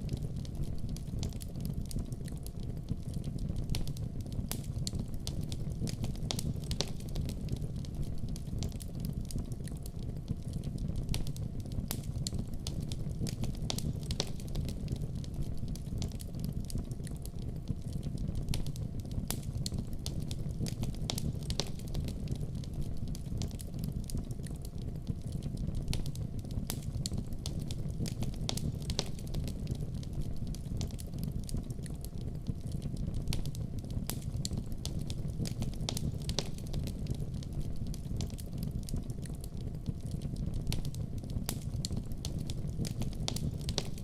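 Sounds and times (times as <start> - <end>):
fire crackling and popping: 0.0 - 44.0
fire flames roaring: 25.5 - 43.9.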